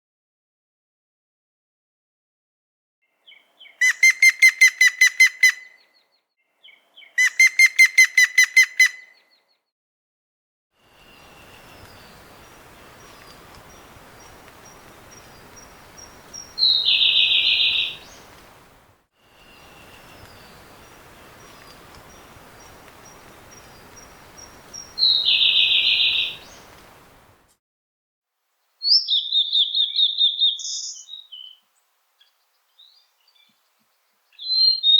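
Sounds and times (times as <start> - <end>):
harsh buzzy bird call: 3.8 - 5.8, 7.2 - 9.2, 21.7 - 26.7
clear evenly spaced bird notes: 10.9 - 18.5, 19.3 - 27.3.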